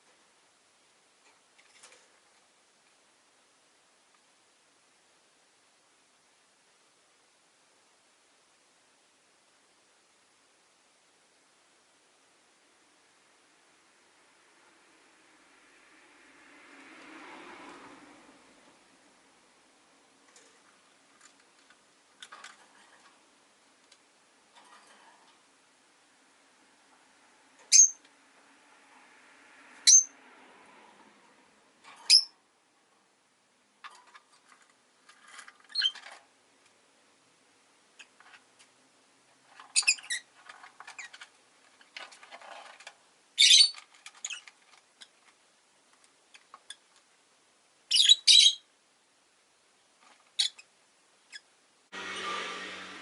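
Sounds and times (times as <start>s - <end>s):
sharp high bird calls: 43.4s - 43.8s.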